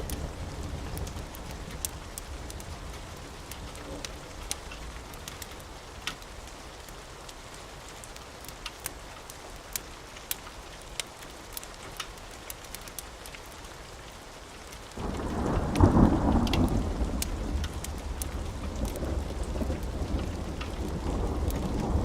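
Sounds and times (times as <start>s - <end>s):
thunder rumbling: 0.0s - 4.8s, 15.0s - 22.0s
steady rain: 0.0s - 22.0s
sharp crackles: 14.6s - 22.0s.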